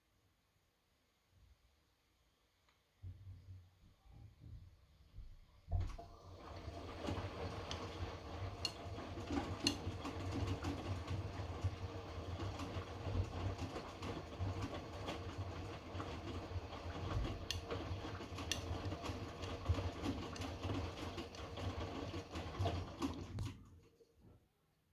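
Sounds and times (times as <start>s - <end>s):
washing machine drum humming: 5.7s - 24.0s
tumbling load clicks and knocks: 5.8s - 23.5s.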